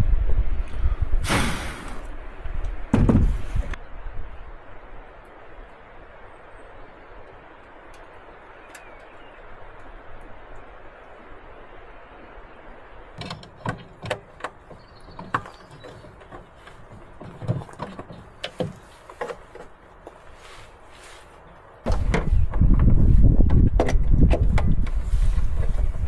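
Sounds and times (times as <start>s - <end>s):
irregular handling clicks and knocks: 13.2s - 20.3s.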